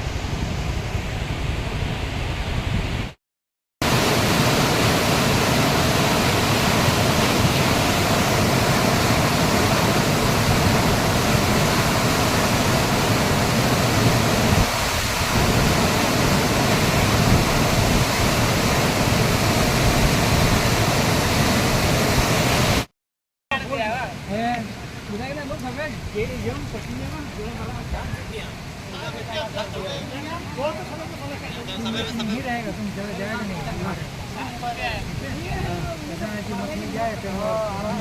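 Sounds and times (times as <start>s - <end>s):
floodwater rushing: 3.8s - 22.9s, 23.5s - 38.0s.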